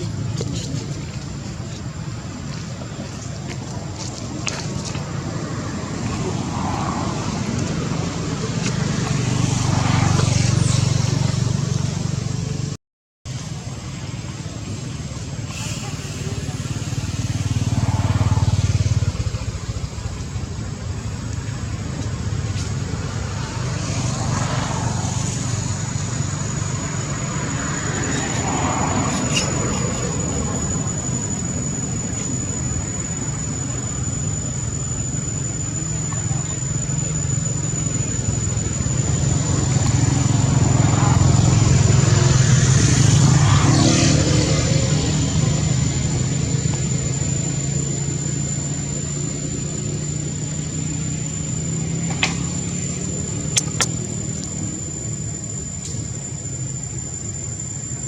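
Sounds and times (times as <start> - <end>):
vehicles passing: 0.0 - 58.0.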